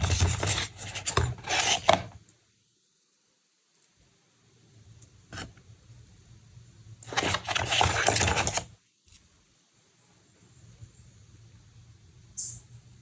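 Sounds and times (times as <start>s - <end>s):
rustling scrape: 0.0s - 2.2s, 7.1s - 8.6s.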